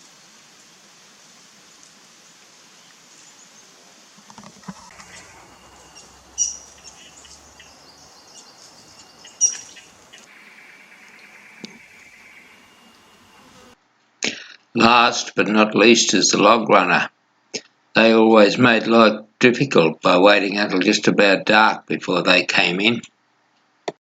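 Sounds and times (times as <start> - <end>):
wild birds chirping: 0.0 - 13.8
high background hiss: 0.0 - 23.0
sharp loud bird calls: 4.6 - 13.8.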